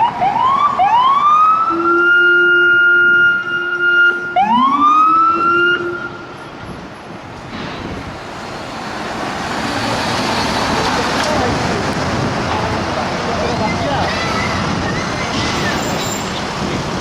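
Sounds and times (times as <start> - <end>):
police siren wailing: 0.0 - 6.3
deep low siren tone: 0.0 - 6.4
traffic noise: 0.0 - 17.0.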